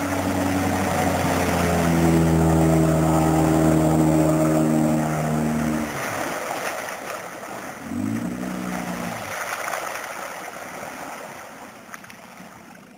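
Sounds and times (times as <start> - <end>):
outboard motor running: 0.0 - 10.0
water lapping around hull: 0.0 - 12.9.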